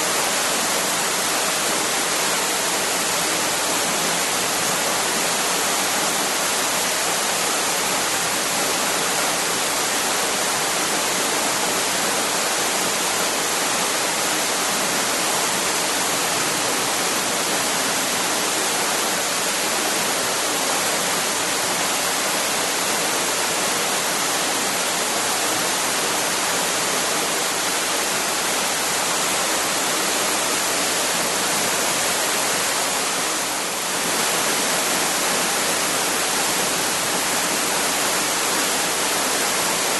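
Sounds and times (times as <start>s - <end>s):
waterfall splashing: 0.0s - 39.9s.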